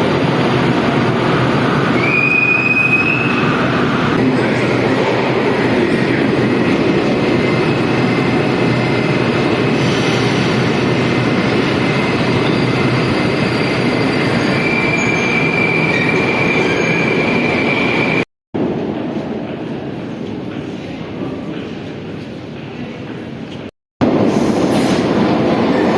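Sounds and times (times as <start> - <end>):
metro train rumbling on rails: 0.0 - 25.9
high wheel squeal: 11.8 - 18.2.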